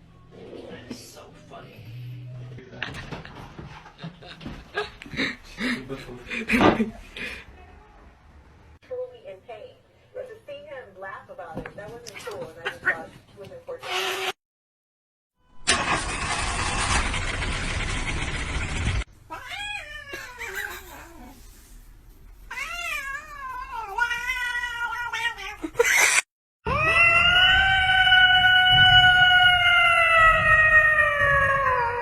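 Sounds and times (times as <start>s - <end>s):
cat yowling: 19.3s - 21.4s, 22.5s - 32.0s.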